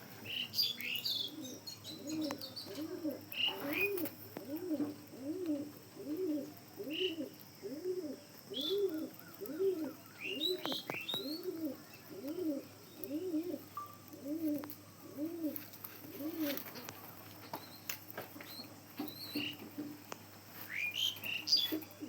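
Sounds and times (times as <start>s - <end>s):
pigeon cooing: 0.2s - 17.3s, 20.6s - 22.0s.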